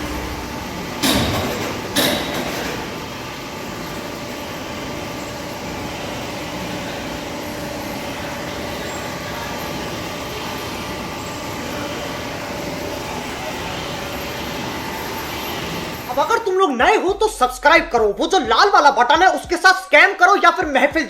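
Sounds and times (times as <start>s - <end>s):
lathe mechanical hum: 0.0s - 21.0s.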